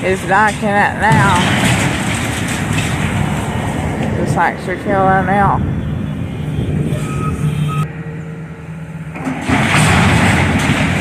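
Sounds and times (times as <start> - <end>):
building crashing down: 0.0 - 5.0, 9.2 - 11.0
heavy machine engine running: 0.0 - 11.0
short warning beeps: 5.8 - 7.9.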